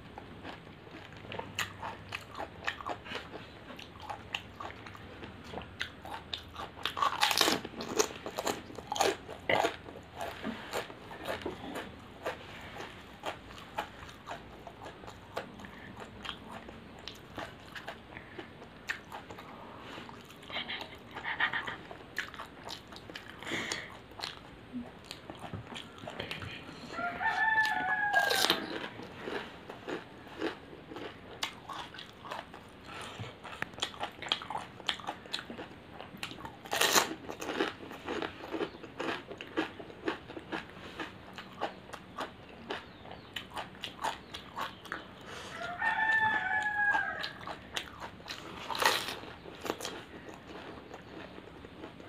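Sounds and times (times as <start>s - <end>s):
crunchy shells chewed: 0.0s - 52.0s
rooster crowing: 26.9s - 29.0s, 45.5s - 47.6s.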